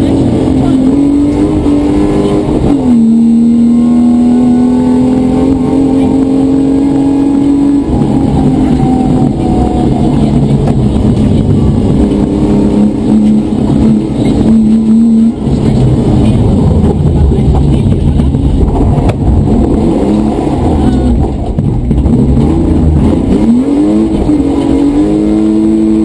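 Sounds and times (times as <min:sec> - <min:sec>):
car engine accelerating: 0:00.0 - 0:26.0
road noise: 0:00.0 - 0:26.0.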